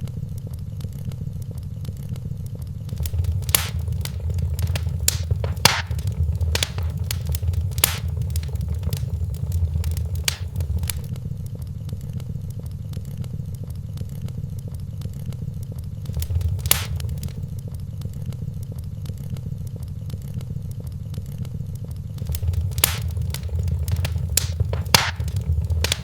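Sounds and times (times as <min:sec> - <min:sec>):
wood fire crackling and popping: 0:02.9 - 0:11.1, 0:16.0 - 0:17.5, 0:22.2 - 0:26.0.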